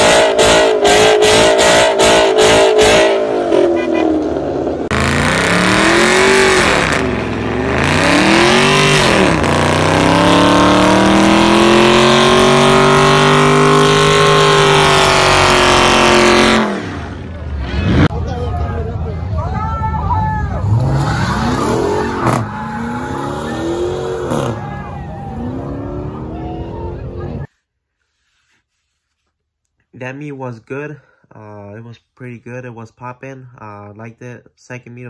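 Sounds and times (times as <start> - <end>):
car engine revving hard: 0.0 - 18.1, 20.6 - 24.6.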